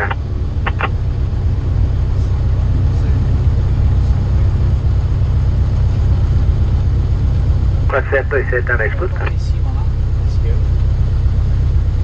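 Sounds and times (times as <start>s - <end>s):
light aircraft engine droning: 0.0s - 12.0s.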